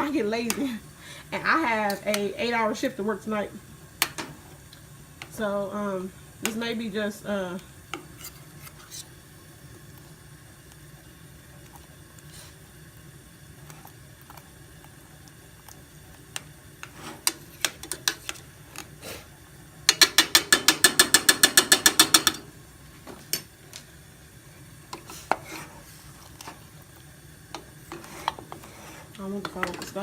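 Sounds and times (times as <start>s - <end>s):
scattered clicks and knocks: 19.9s - 22.5s.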